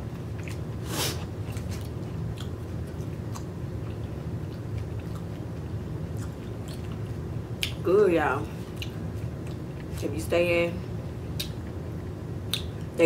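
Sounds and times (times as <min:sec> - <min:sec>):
person chewing: 0:00.2 - 0:07.8
wet mouth clicks and smacks: 0:12.5 - 0:12.8.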